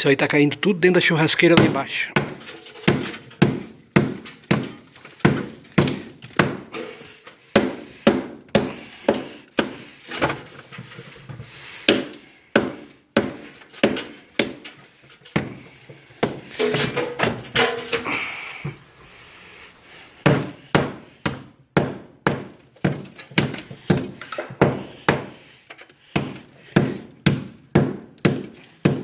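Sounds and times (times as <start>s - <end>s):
hammer striking masonry: 0.9s - 10.6s, 11.8s - 18.4s, 20.2s - 29.0s.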